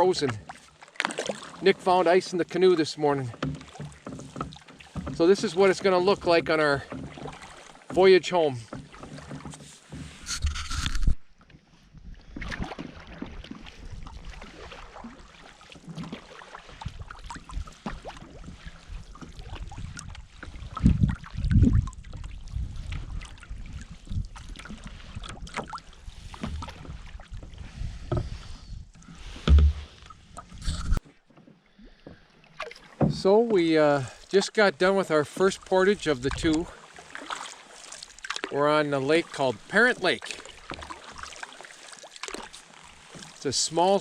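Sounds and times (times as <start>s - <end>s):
paddle splashes and drips: 0.0s - 44.0s
low thumps: 29.3s - 31.0s.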